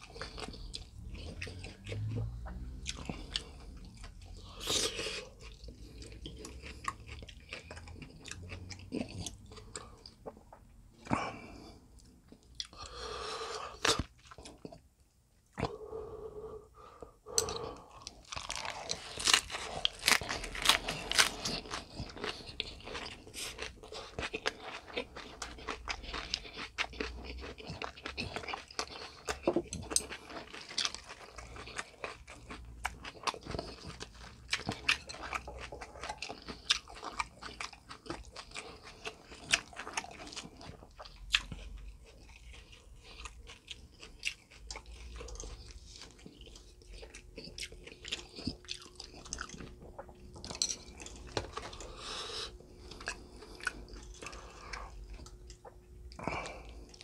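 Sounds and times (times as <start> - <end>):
cabbage crunching between teeth: 17.6 - 57.0.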